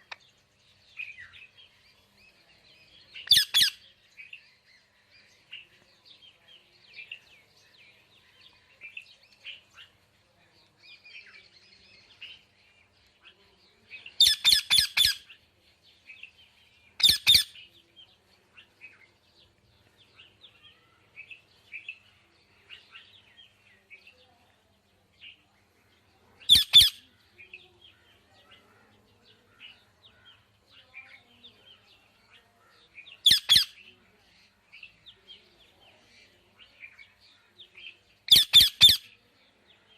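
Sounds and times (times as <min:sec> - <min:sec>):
parrot chirping and chattering: 0:03.2 - 0:03.8, 0:14.2 - 0:15.4, 0:17.0 - 0:17.6, 0:26.5 - 0:27.0, 0:33.2 - 0:33.8, 0:38.3 - 0:39.1
parrot squawks: 0:03.3 - 0:03.8, 0:14.2 - 0:15.3, 0:17.0 - 0:17.5, 0:26.5 - 0:27.0, 0:38.3 - 0:39.0.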